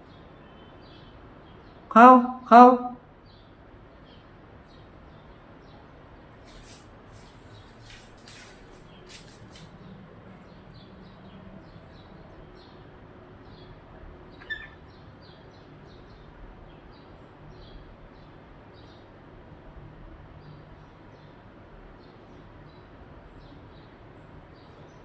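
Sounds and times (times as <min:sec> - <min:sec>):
parrot chirping: 0:14.4 - 0:14.8.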